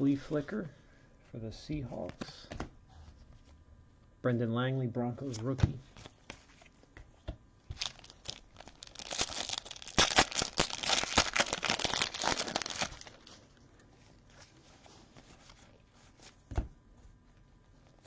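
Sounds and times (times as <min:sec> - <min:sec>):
foil wrapper crinkling and tearing: 0:07.8 - 0:13.5.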